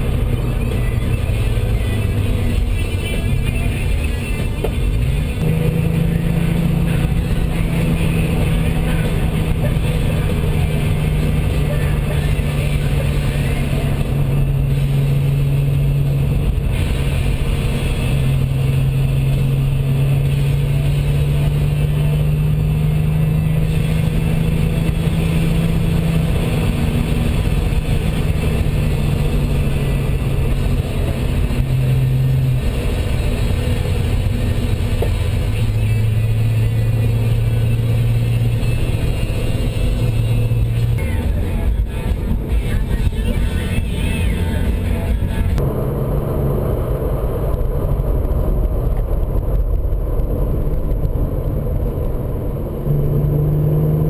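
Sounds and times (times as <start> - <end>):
car engine droning: 0.0 - 54.0
tyre and wind noise: 47.1 - 53.9.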